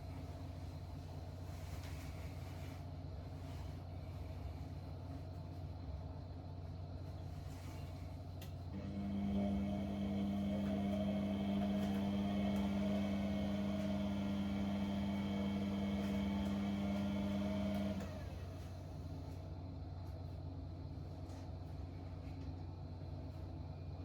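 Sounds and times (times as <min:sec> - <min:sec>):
dishwasher low constant hum: 0:00.0 - 0:24.0
dishwasher pump motor humming: 0:08.6 - 0:19.4.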